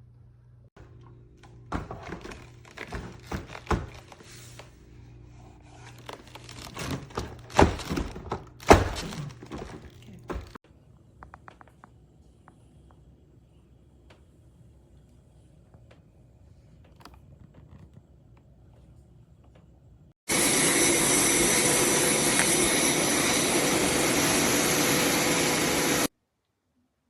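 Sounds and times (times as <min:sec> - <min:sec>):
thunks and knocks: 0:06.7 - 0:10.6.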